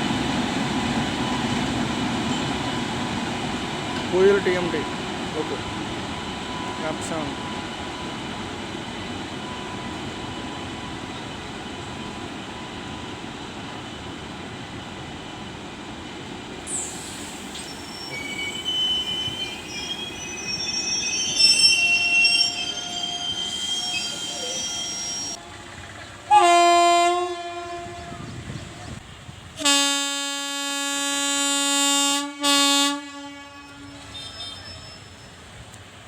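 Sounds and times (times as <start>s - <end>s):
train rumbling on track: 0.0s - 36.0s
train wheels squealing: 16.7s - 25.4s, 33.6s - 35.8s.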